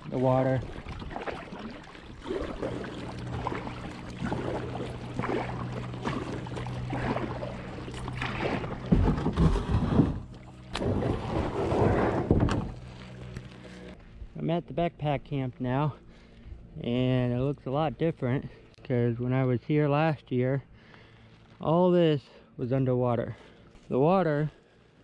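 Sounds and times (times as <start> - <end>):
paddle strokes splashing water: 0.0 - 14.0.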